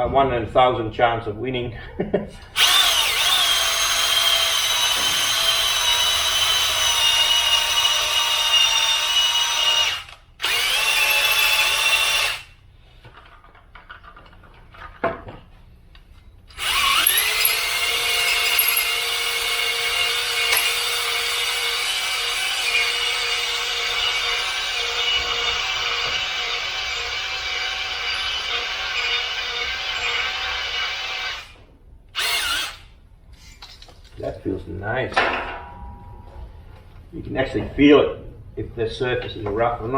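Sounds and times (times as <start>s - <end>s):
electric drill whining: 2.5s - 12.6s, 16.5s - 33.8s.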